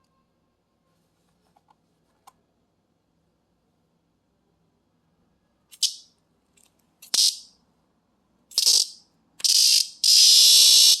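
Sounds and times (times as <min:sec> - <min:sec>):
cicada buzzing: 0:07.1 - 0:07.4, 0:08.5 - 0:11.0.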